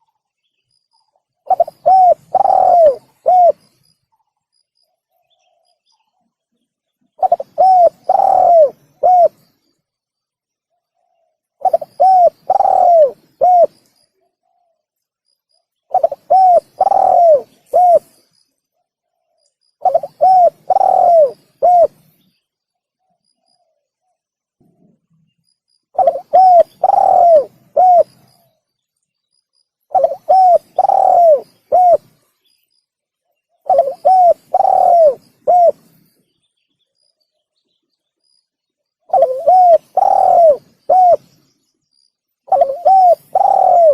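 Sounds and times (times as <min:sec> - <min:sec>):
dove cooing: 0:01.4 - 0:03.8, 0:07.2 - 0:09.5, 0:11.0 - 0:13.8, 0:15.9 - 0:18.2, 0:19.8 - 0:22.1, 0:26.0 - 0:28.5, 0:29.9 - 0:32.2, 0:33.6 - 0:36.0, 0:39.1 - 0:41.4, 0:42.5 - 0:43.9.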